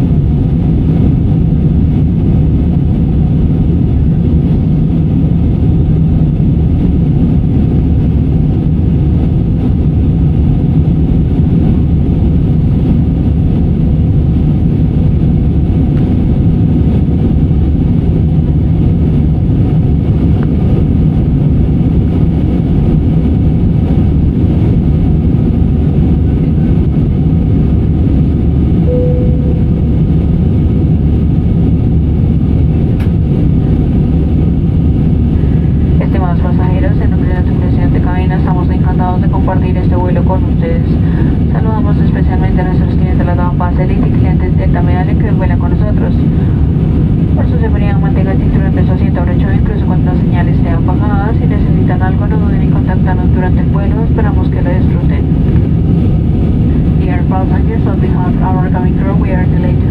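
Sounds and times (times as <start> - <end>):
airliner cabin engine rumble: 0.0 - 59.9
single tone: 28.8 - 30.4.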